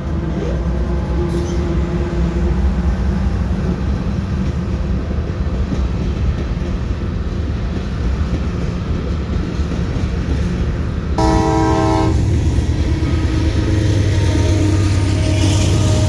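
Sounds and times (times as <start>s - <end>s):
train rumbling: 0.0s - 16.0s
train horn blast: 11.2s - 16.0s.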